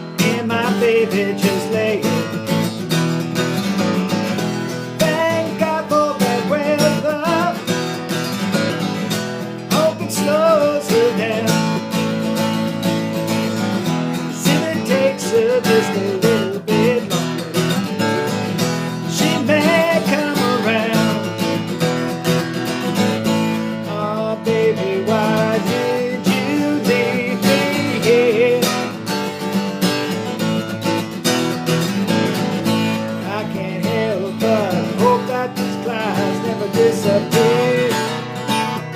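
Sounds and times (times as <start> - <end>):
strummed acoustic guitar: 0.0 - 38.9.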